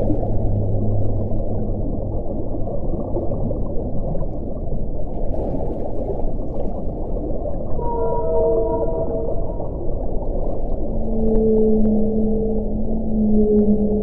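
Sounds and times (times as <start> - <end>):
faint whistling tone: 7.8 - 9.8, 11.1 - 14.0.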